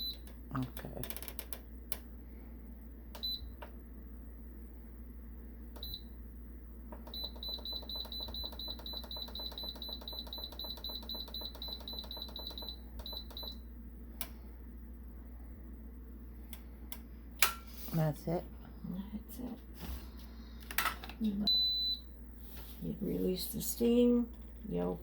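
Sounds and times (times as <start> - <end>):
pressure cooker control panel beeping: 7.1 - 13.6.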